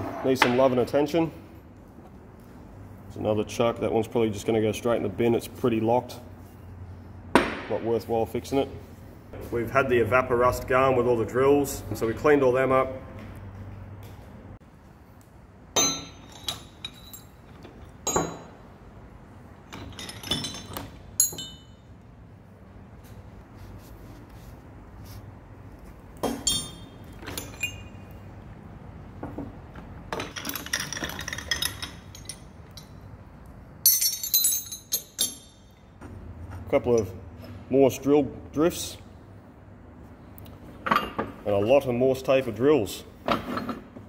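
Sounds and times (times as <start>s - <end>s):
metal tools clinking: 15.8s - 18.6s, 19.7s - 22.0s, 26.2s - 28.3s, 30.1s - 33.2s, 33.8s - 37.2s.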